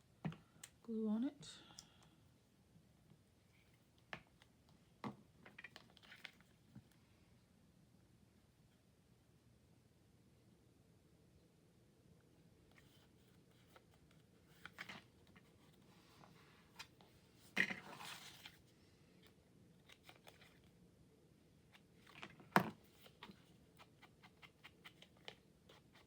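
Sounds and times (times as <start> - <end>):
paper clicks and crinkles: 5.5 - 6.6, 16.7 - 20.8, 21.8 - 26.0
paper rustling: 19.8 - 20.8.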